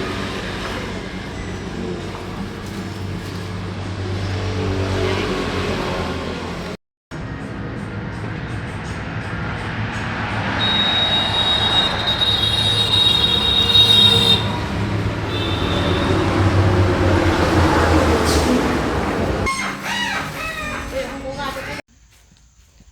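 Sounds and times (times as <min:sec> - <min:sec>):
motor vehicle running: 0:00.0 - 0:21.8
high thin squeal: 0:10.6 - 0:14.6, 0:19.5 - 0:21.8.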